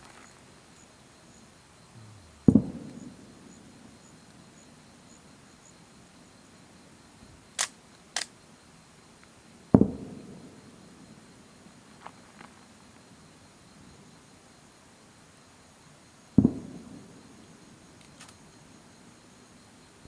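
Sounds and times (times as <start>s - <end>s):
firework booms: 2.0s - 3.2s.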